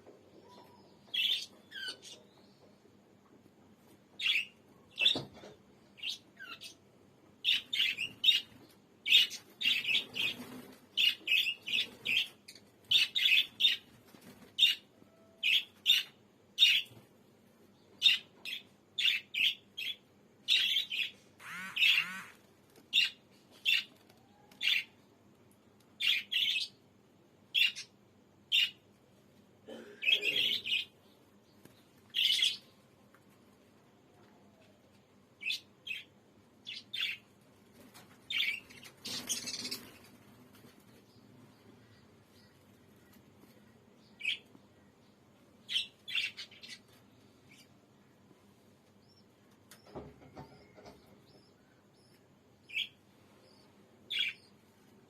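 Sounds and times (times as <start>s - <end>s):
parrot calling: 20.7s - 22.4s.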